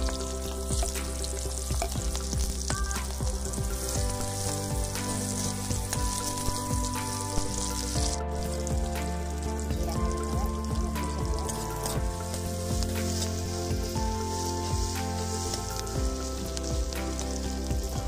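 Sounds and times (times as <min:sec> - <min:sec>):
vegetables sizzling in hot oil: 0:00.0 - 0:18.0
spatula scraping a wok: 0:11.4 - 0:17.7.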